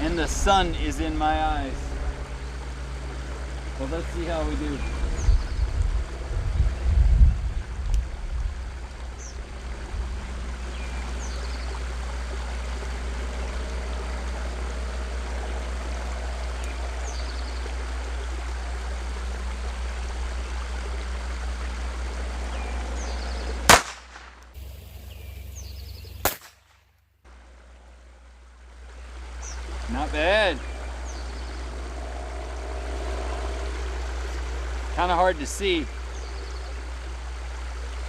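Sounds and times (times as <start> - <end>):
low rumble: 0.0 - 26.4, 27.3 - 38.0
pistol shots: 23.7 - 24.4, 26.2 - 26.6.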